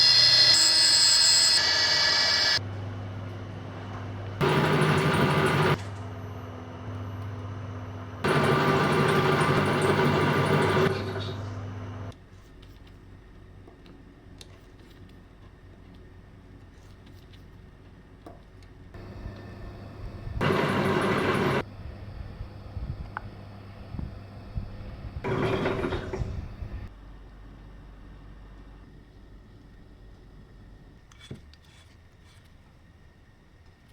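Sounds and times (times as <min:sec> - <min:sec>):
lathe cutting metal: 0:00.0 - 0:02.6, 0:08.2 - 0:12.1, 0:19.0 - 0:21.6, 0:25.2 - 0:26.8
lathe motor humming: 0:00.0 - 0:02.6, 0:04.4 - 0:12.1, 0:19.0 - 0:26.9.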